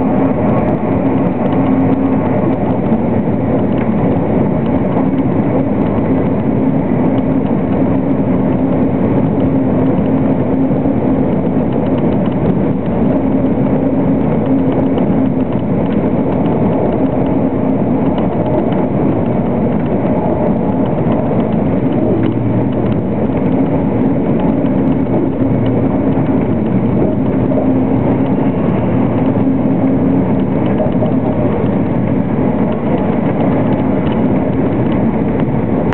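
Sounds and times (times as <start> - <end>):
low hum: 0.0 - 35.9
train wheels rumbling on rail: 0.0 - 35.9.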